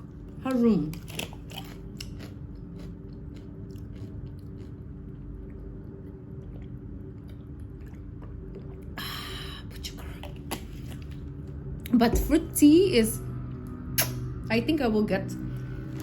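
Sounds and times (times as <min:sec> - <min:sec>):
steady low hum: 0:00.0 - 0:16.0
mouth clicks of eating: 0:14.0 - 0:14.2.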